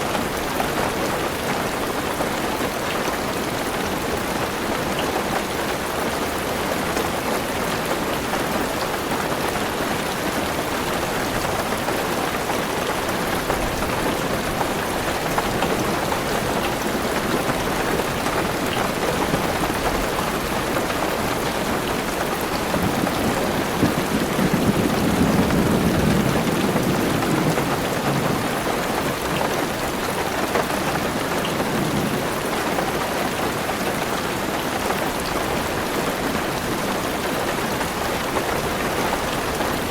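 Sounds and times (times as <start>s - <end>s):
rain on a car roof: 0.0s - 39.9s
thunder rolling: 22.6s - 29.0s.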